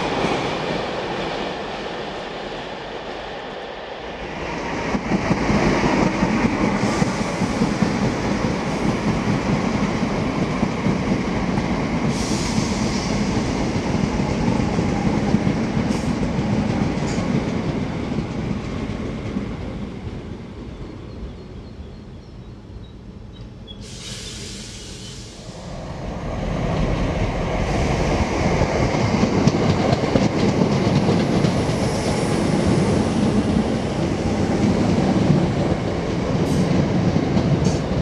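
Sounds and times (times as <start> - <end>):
train wheels rumbling on track: 0.0 - 38.0
brief hiss: 23.8 - 25.8.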